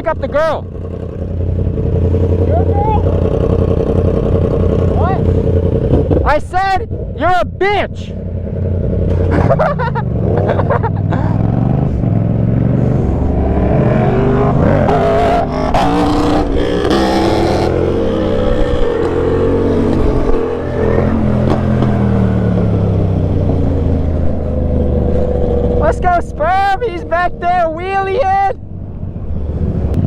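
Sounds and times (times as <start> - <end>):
motorcycle engine running: 0.0 - 27.6
steady rushing noise: 11.3 - 21.7.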